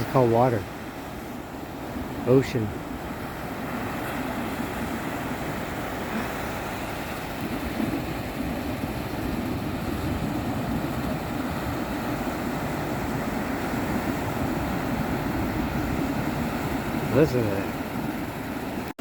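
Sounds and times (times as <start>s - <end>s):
ocean waves: 0.0s - 19.0s
wind on microphone: 2.8s - 18.9s.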